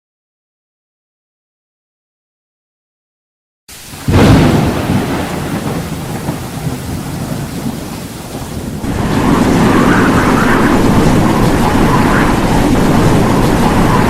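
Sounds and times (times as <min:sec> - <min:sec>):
heavy rain rushing: 0:03.7 - 0:14.0
thunder rumbling: 0:03.8 - 0:14.0.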